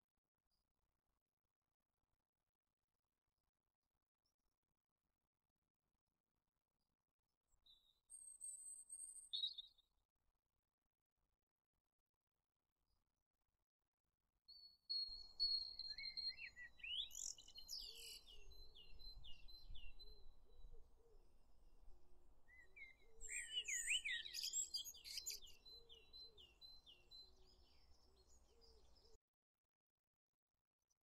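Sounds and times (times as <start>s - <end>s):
songbird singing: 14.9s - 29.2s.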